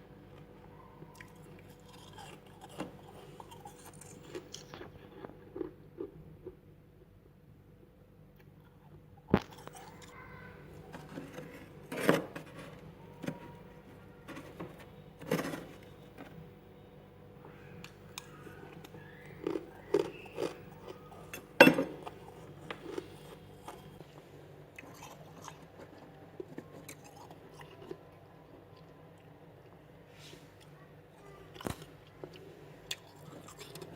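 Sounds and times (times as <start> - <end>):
frost being bitten and chewed: 1.2 - 6.6.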